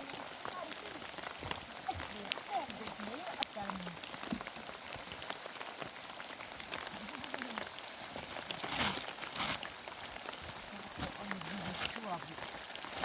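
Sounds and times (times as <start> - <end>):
rain falling: 0.0 - 13.0
raindrops striking close by: 0.0 - 13.0.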